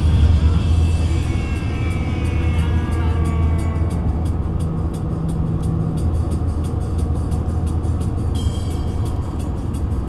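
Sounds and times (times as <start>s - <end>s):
high squeal: 0.0s - 5.3s
train rumbling: 0.0s - 10.0s.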